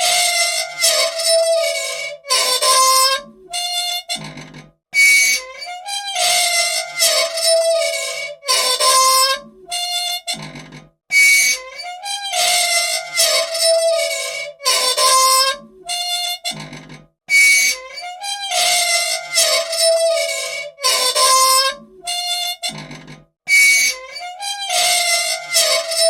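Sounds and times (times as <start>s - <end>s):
old machine squeaking: 0.0s - 26.0s.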